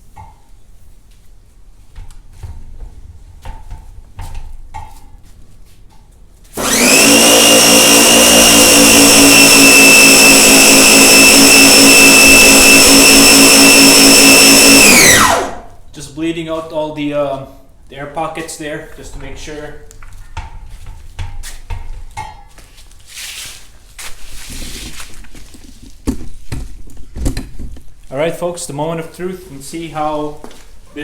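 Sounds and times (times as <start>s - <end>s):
pressure washer whining: 6.6s - 15.8s.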